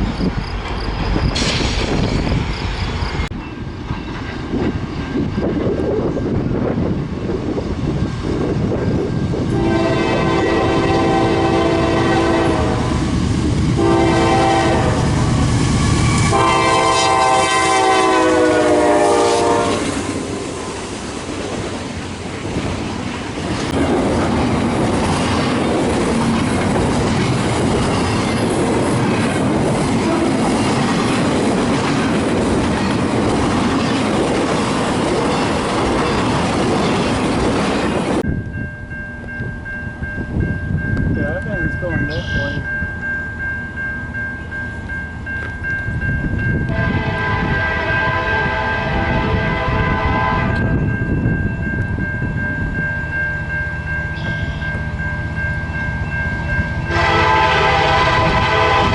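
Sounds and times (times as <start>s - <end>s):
train wheels clattering over rails: 0.0s - 6.9s, 19.6s - 38.2s
locomotive air horn blasts: 9.6s - 13.0s, 13.8s - 15.1s, 16.1s - 20.0s, 46.7s - 50.6s, 56.9s - 58.9s.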